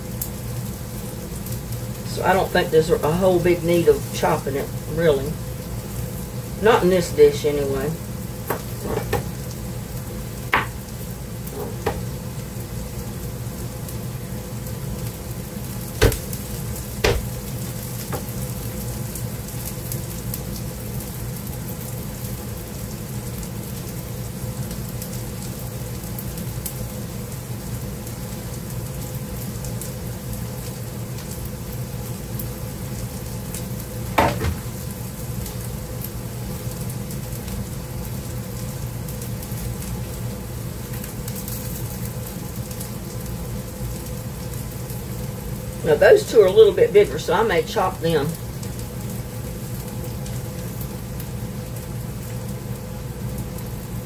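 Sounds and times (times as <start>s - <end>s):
vegetables sizzling in oil: 0.0s - 54.0s
sharp kitchen knocks: 8.5s - 9.3s, 10.5s - 10.8s, 11.5s - 12.1s, 16.0s - 16.3s, 17.0s - 17.3s, 34.2s - 34.7s.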